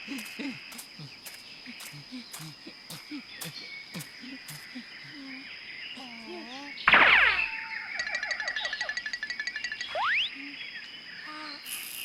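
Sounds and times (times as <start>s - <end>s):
high insect-like chirr: 0.0s - 12.0s
sharp ticks: 0.1s - 4.8s, 8.0s - 10.2s.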